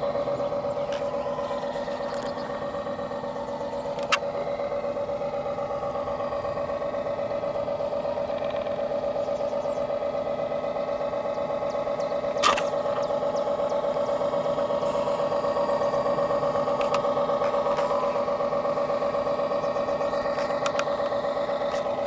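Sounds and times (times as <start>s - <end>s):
model boat motor whining: 0.0s - 22.0s
sharp click: 12.4s - 13.1s.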